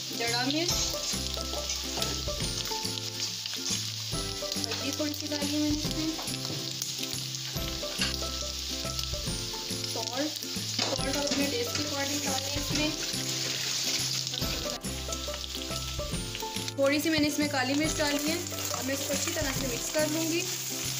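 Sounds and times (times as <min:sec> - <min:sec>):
chicken sizzling in oil: 0:00.0 - 0:20.9
background music with bass line: 0:00.7 - 0:03.1, 0:07.5 - 0:10.0, 0:14.4 - 0:20.0.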